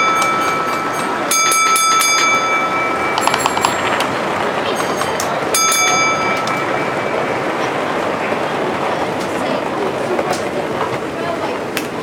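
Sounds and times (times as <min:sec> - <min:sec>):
exhibition hall crowd noise: 0:02.6 - 0:12.0
rapid clicking: 0:03.1 - 0:05.6.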